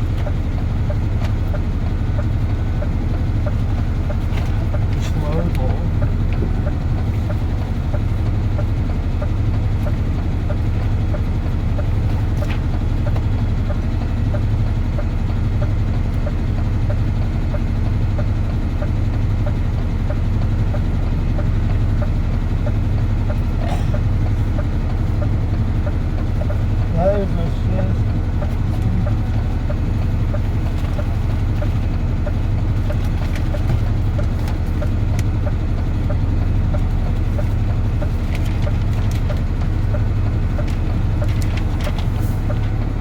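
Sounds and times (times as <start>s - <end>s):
truck diesel engine droning: 0.0s - 43.0s.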